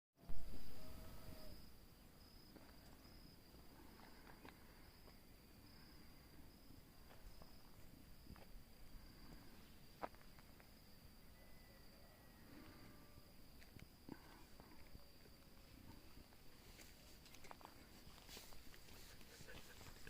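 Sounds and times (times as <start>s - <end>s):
faint insect trilling: 0.4s - 20.0s.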